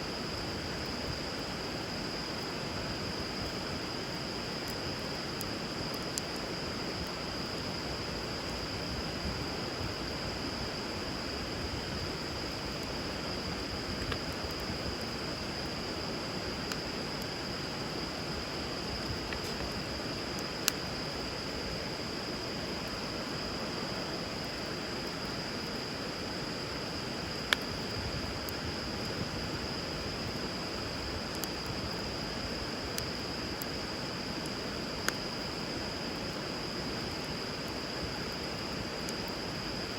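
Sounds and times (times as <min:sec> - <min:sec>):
wood fire crackling and popping: 0:00.2 - 0:21.2, 0:26.8 - 0:35.2.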